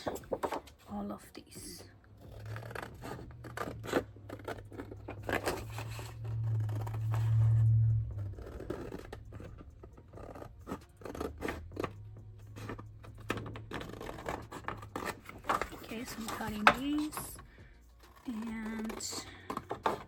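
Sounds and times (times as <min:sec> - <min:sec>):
low hum: 0:01.9 - 0:19.6
scissors snipping paper: 0:08.4 - 0:17.4, 0:18.0 - 0:20.0.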